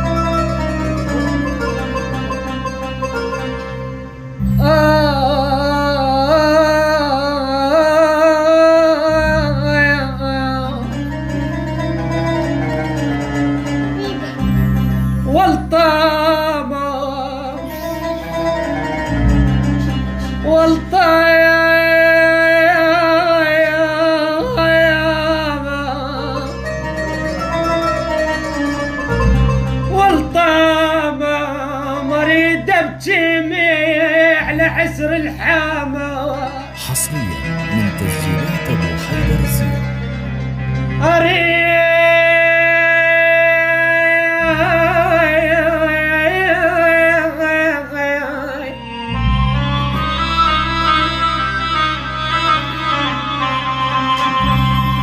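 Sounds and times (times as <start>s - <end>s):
person singing a lament: 4.6s - 11.0s, 30.0s - 39.9s
low instrumental backing: 34.6s - 42.8s.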